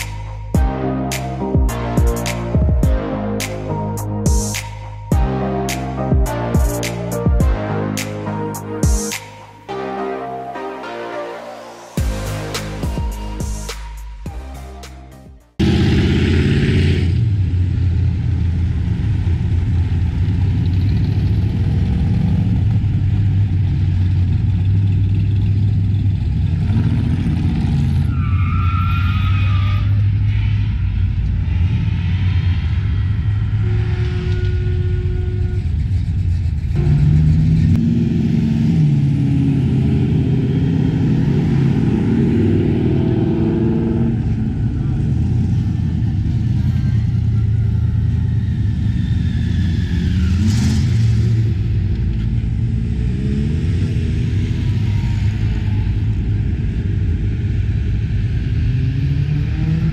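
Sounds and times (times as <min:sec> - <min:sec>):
car engines rumbling: 0:12.0 - 0:59.9.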